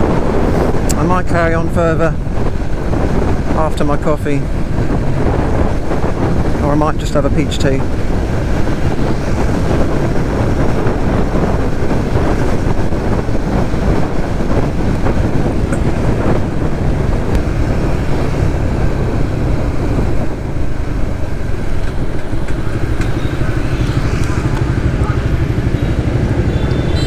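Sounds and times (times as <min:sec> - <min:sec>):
wind and road noise: 0:00.0 - 0:27.0
motorcycle engine running: 0:04.4 - 0:06.6, 0:07.7 - 0:27.0.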